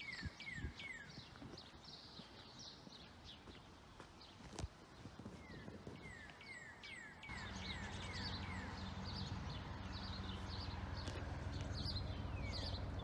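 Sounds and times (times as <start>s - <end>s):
small birds chirping: 0.0s - 13.0s
helicopter low drone: 7.3s - 13.0s.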